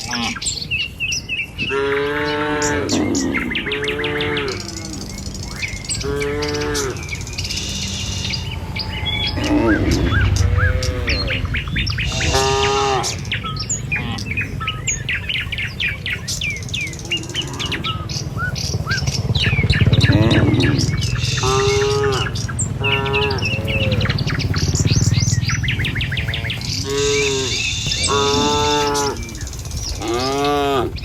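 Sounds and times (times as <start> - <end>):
small birds chirping: 0.0 - 31.0
cattle lowing: 1.6 - 31.0.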